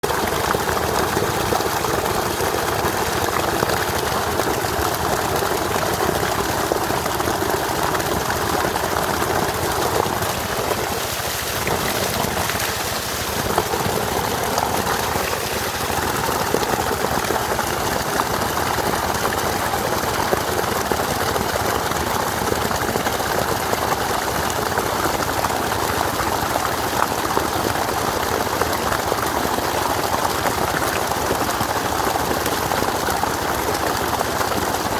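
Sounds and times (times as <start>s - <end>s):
flowing water rushing: 0.0s - 34.9s.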